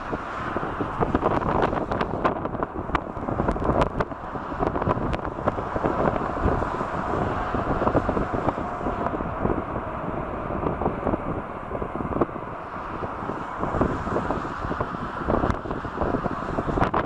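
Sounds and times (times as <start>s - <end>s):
storm wind buffeting microphone: 0.0s - 17.0s.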